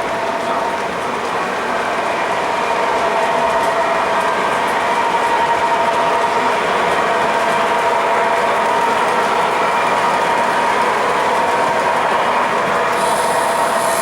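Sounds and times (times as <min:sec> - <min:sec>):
model train wheels clattering on rail: 0:06.0 - 0:14.0.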